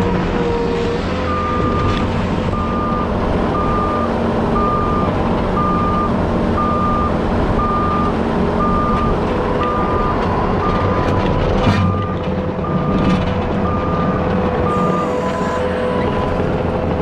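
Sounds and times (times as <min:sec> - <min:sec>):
diesel engine running: 0:00.0 - 0:17.0
backup alarm beeping: 0:01.3 - 0:01.9, 0:02.5 - 0:15.4.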